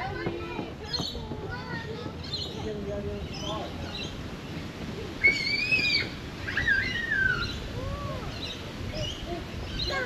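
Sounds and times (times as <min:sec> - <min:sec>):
birds calling: 0:00.0 - 0:10.0.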